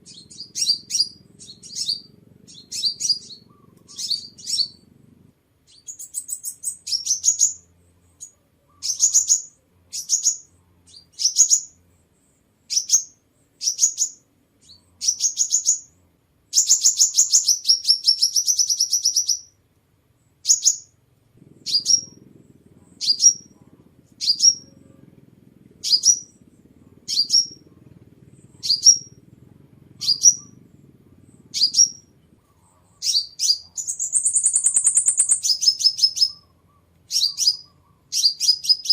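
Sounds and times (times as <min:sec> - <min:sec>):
bird trilling: 0:00.0 - 0:04.9, 0:05.7 - 0:11.8, 0:12.7 - 0:19.5, 0:20.4 - 0:38.9
bird chirping: 0:00.0 - 0:19.6, 0:20.2 - 0:38.9.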